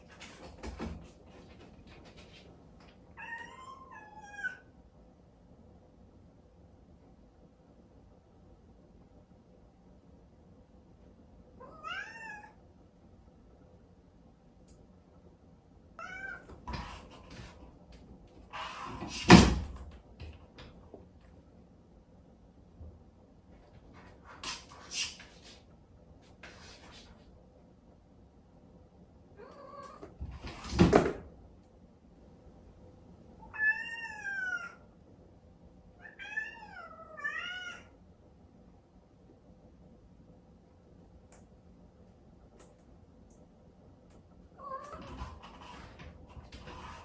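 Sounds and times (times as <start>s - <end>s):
cat meowing: 11.6s - 12.6s, 16.0s - 16.8s, 33.5s - 34.8s, 36.0s - 37.9s.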